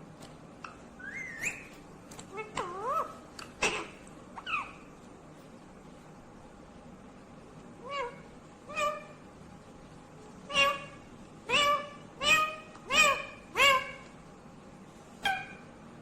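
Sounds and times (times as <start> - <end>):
parakeet squawking: 1.0 - 4.9, 7.8 - 9.2, 10.4 - 14.2, 15.2 - 15.7.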